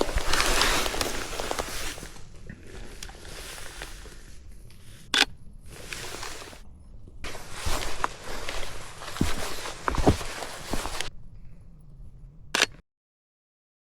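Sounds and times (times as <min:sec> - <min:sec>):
footsteps crunching dry vegetation: 0:00.0 - 0:04.3, 0:07.2 - 0:11.2
sharp click: 0:12.6 - 0:12.8.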